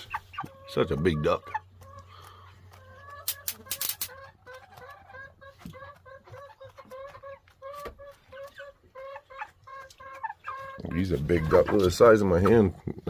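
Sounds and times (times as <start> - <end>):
chickens clucking: 0.0 - 13.0
sharp clicks: 3.2 - 4.2.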